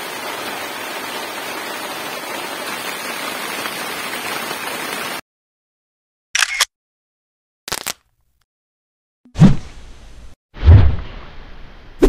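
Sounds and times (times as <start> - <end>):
heavy rain hissing: 0.0 - 5.2.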